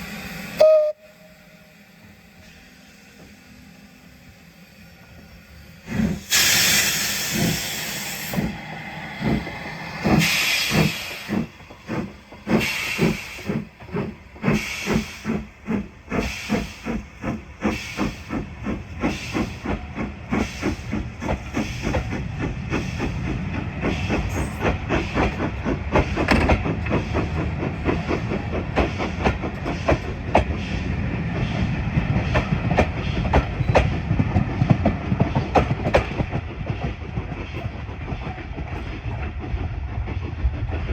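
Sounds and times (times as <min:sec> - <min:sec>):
steam locomotive chuffing: 0:00.0 - 0:40.9
train rumble: 0:00.0 - 0:40.9
steam hissing from drain cocks: 0:05.9 - 0:22.2.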